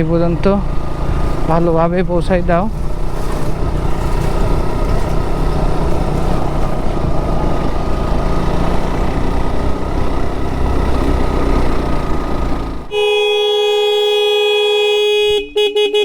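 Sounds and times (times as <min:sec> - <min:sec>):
motorcycle engine running: 0:00.0 - 0:15.7.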